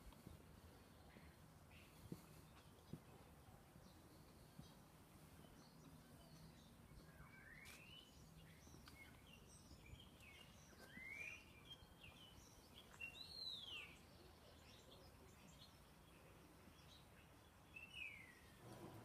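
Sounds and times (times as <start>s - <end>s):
faint bird chirps: 3.9s - 19.0s.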